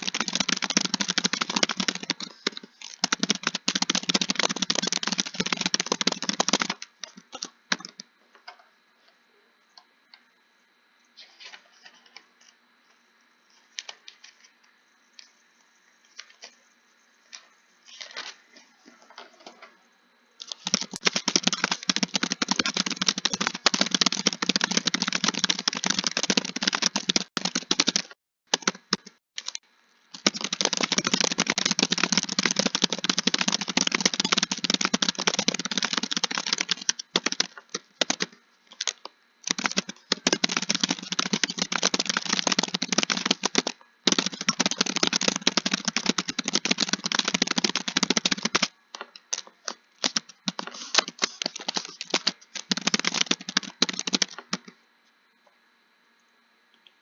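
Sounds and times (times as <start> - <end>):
rapid typing on keyboard: 0.0 - 8.1, 20.4 - 54.8.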